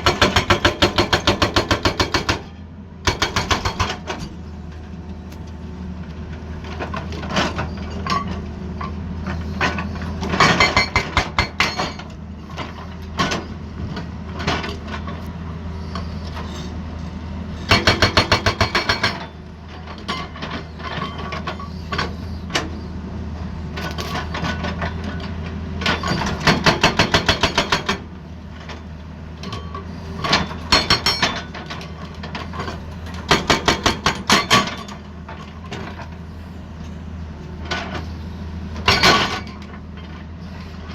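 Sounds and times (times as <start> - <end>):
hydraulic breaker hammer pounding: 0.0 - 4.2, 9.7 - 12.1, 17.6 - 19.4, 26.0 - 28.1, 30.3 - 31.7, 33.2 - 35.0
excavator engine running: 0.0 - 40.9.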